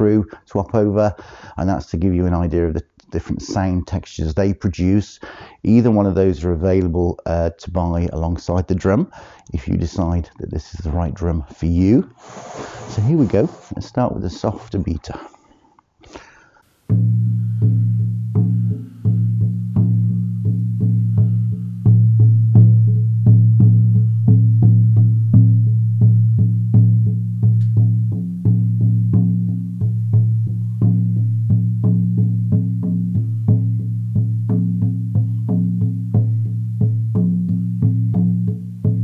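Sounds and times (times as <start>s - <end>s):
frame drum booming beats: 16.9s - 39.0s.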